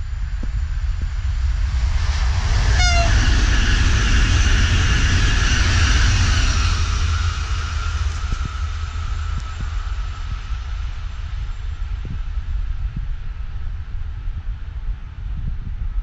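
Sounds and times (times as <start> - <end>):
train wheel and air rush: 0.0 - 15.8
high train whine: 0.0 - 16.0
wind rumble on microphone: 0.0 - 16.0
brief shrill tone: 2.8 - 3.3.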